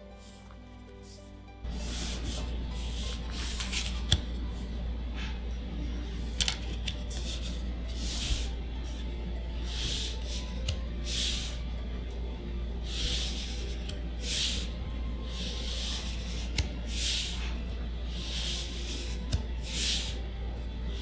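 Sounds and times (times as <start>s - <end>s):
low hum: 0.0s - 21.0s
card packaging rustling: 1.7s - 4.8s.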